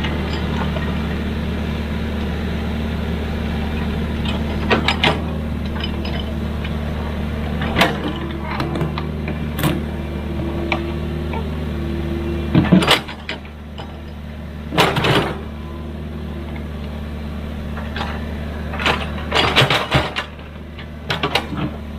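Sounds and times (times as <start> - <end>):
diesel engine running: 0.0 - 21.9
loud metal clanks: 3.2 - 9.9.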